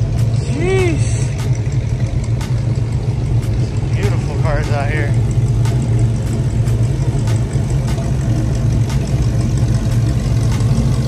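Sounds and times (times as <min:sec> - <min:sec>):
car engines idling: 0:00.0 - 0:11.0.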